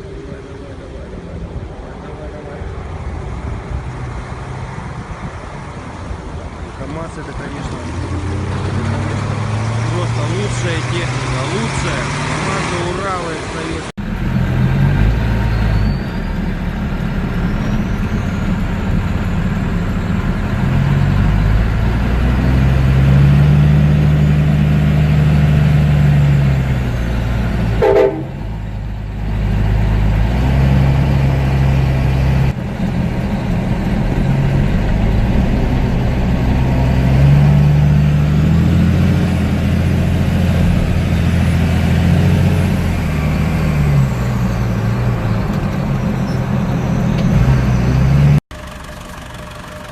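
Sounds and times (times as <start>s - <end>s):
diesel truck engines revving: 0.0s - 49.9s.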